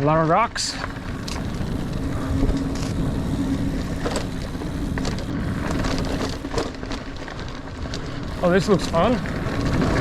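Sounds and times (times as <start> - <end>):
bike clicks and rattles: 0.0 - 10.0
bike rolling over rocks: 0.0 - 10.0
wind on microphone: 0.9 - 6.7.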